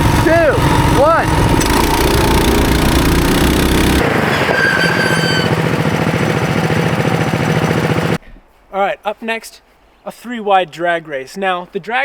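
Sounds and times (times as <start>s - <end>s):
brake squeal: 0.0s - 8.2s
small engines running hard: 0.0s - 8.2s.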